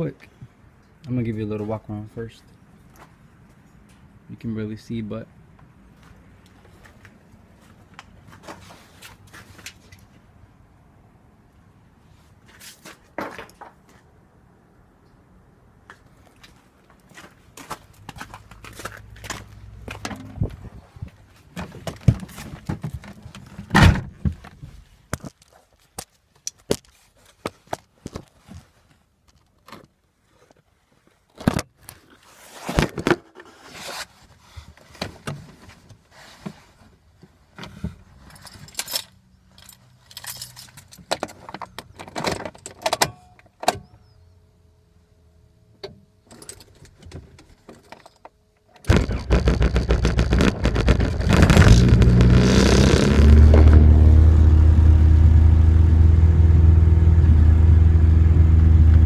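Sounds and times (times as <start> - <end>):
car engine starting and idling: 48.9 - 59.0.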